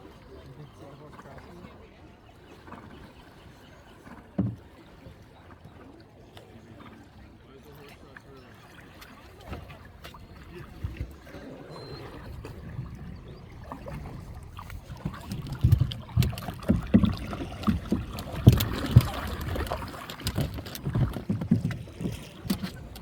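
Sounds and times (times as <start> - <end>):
water splashing around boat: 0.0 - 23.0
low knocks and thumps: 12.3 - 23.0.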